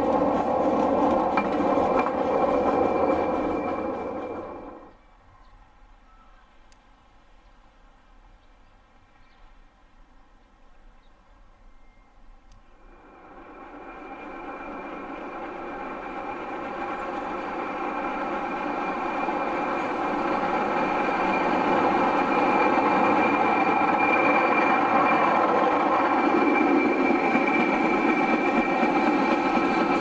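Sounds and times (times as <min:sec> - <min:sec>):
railway locomotive running: 0:00.0 - 0:05.0, 0:12.2 - 0:30.0.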